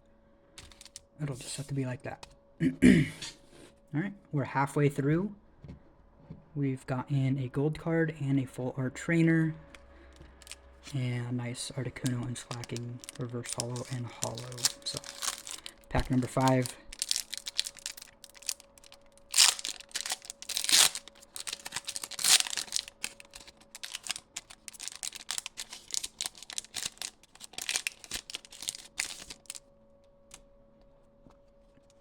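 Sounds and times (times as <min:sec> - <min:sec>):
foil wrapper crinkling: 0:00.6 - 0:01.0, 0:10.1 - 0:11.1, 0:11.8 - 0:29.6
foil wrapper ripping: 0:00.6 - 0:01.0, 0:10.4 - 0:11.1, 0:11.9 - 0:29.6.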